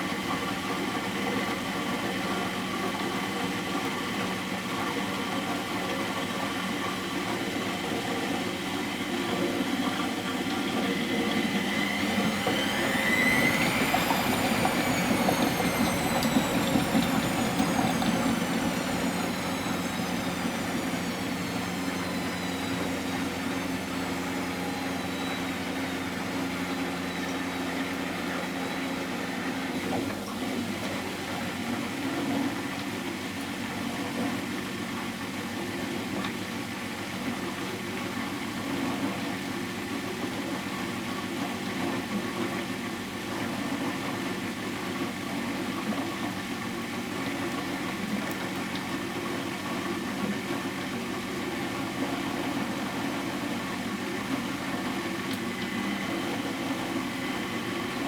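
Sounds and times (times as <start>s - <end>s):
washing machine spinning down: 0.0s - 58.0s
low steady hum: 9.3s - 26.2s.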